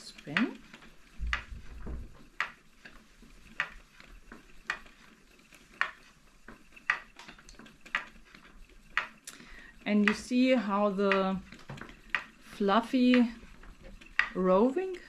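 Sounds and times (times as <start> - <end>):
spinning wheel turning: 0.0 - 15.0.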